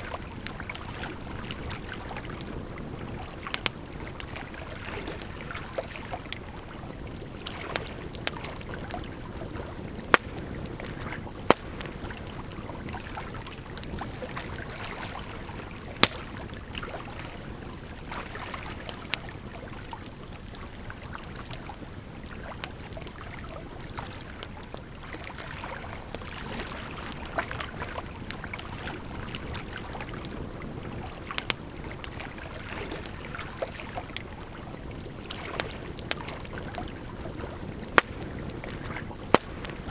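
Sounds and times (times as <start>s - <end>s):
wood fire crackling: 0.0s - 25.0s, 25.9s - 39.9s.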